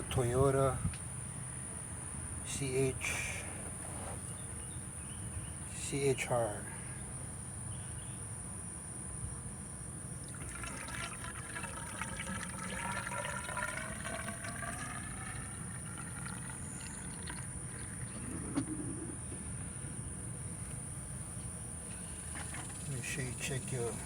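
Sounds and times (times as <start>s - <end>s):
liquid gurgling through funnel: 10.2s - 19.1s, 22.1s - 23.0s.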